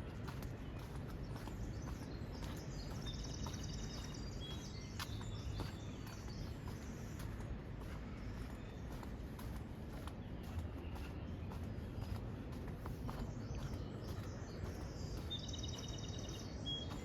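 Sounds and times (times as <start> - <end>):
footsteps on trail: 0.0 - 17.0.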